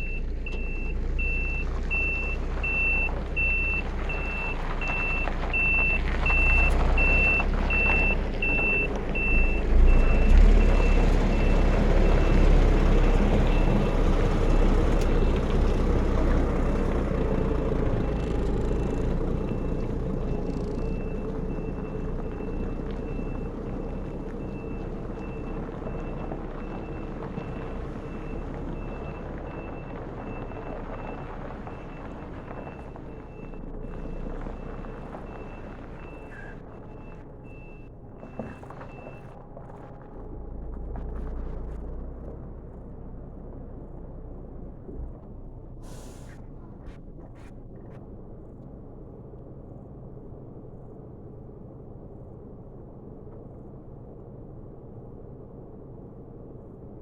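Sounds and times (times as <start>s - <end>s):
truck reversing alarm beeping: 0.0s - 39.9s
truck engine rumble: 0.0s - 57.0s.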